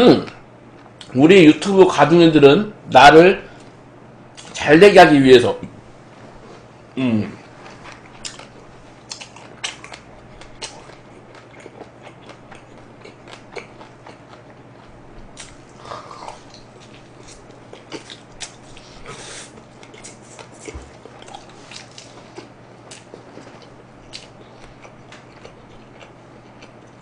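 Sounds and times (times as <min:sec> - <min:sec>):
low steady hum: 0:00.0 - 0:27.0
crunchy chewing and mouth clicks: 0:07.6 - 0:27.0.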